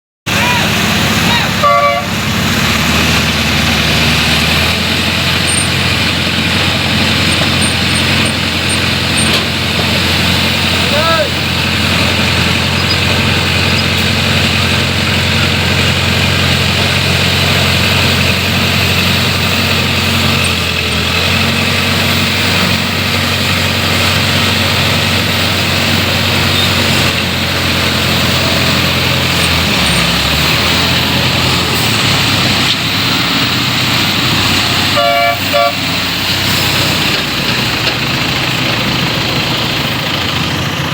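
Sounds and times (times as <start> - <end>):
street traffic: 0.2 - 40.9
truck engine humming: 0.3 - 40.9
vehicle horn toot: 1.3 - 2.2, 34.8 - 35.9.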